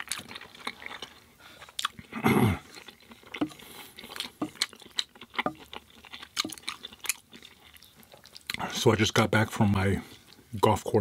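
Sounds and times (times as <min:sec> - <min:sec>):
wet chewing: 0:00.0 - 0:08.7.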